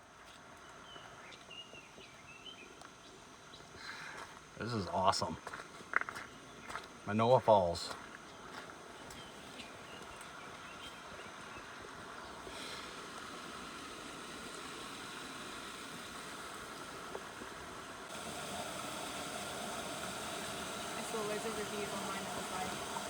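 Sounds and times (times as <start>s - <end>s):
waterfall rushing: 18.1s - 23.0s.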